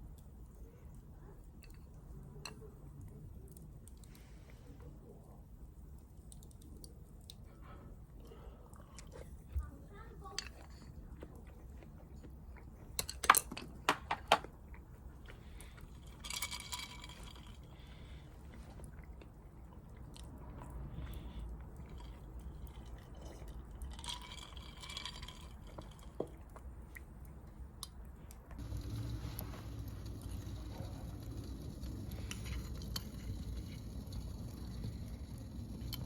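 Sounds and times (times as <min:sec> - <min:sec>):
person chewing: 0:10.5 - 0:13.1, 0:14.4 - 0:16.4, 0:17.0 - 0:28.7.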